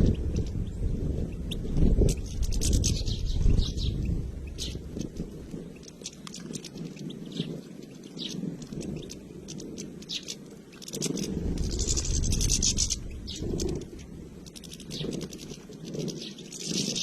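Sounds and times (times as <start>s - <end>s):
low rumble: 0.0s - 5.8s, 11.1s - 15.8s
finches chirping and twittering: 0.0s - 17.0s.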